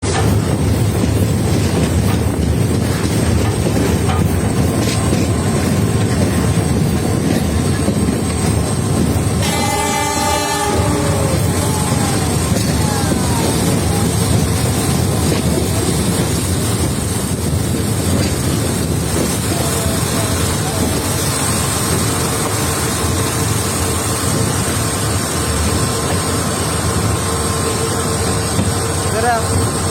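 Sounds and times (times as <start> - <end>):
horn blast: 9.3 - 12.6.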